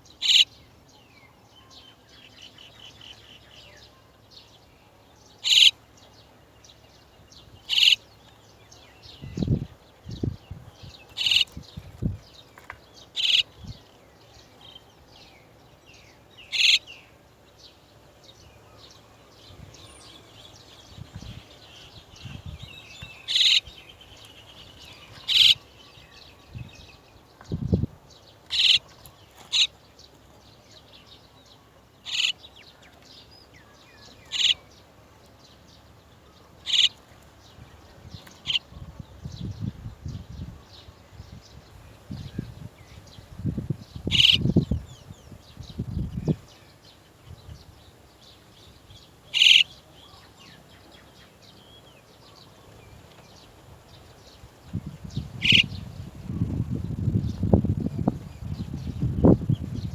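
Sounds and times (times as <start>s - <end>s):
starlings calling: 0.0s - 0.7s, 5.4s - 5.8s, 7.5s - 11.8s, 13.1s - 13.8s, 16.0s - 17.1s, 18.8s - 27.2s, 28.5s - 29.8s, 32.0s - 32.5s, 33.3s - 34.8s, 36.2s - 37.0s, 38.2s - 39.7s, 40.6s - 59.9s
birds chattering: 0.0s - 1.0s, 5.3s - 59.9s.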